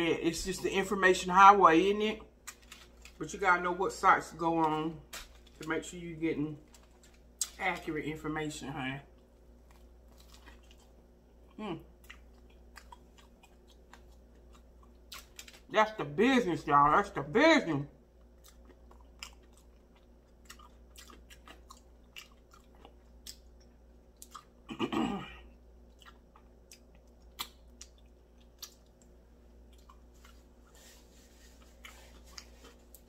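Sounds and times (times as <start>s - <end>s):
person chewing: 9.1s - 15.7s, 18.2s - 24.8s, 25.4s - 33.0s.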